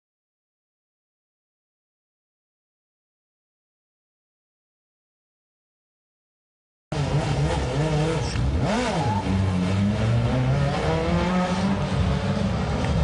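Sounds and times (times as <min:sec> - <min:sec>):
truck engine revving: 0:06.9 - 0:13.0.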